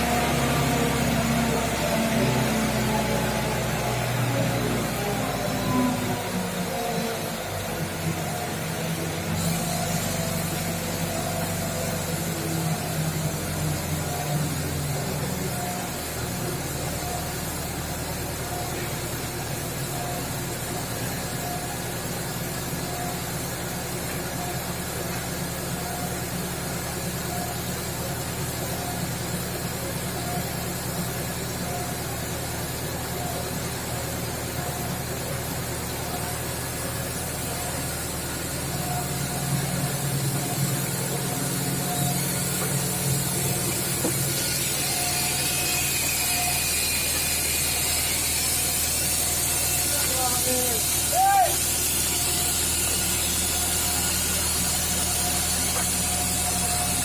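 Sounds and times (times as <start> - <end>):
hoist motor running: 0.0 - 57.0
hiss: 9.3 - 12.1.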